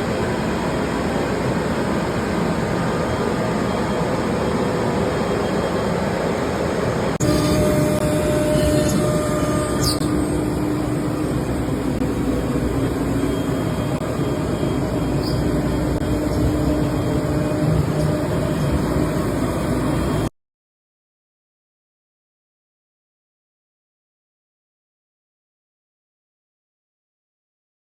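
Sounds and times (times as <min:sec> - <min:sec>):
router machine running: 0:07.2 - 0:20.3.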